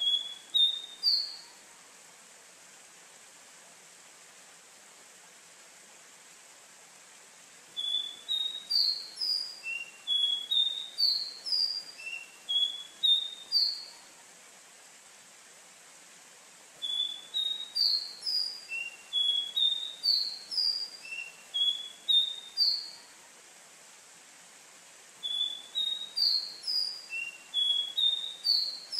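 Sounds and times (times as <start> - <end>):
bird singing whistled notes: 0.0 - 1.6, 7.8 - 14.0, 16.8 - 23.1, 25.2 - 28.9.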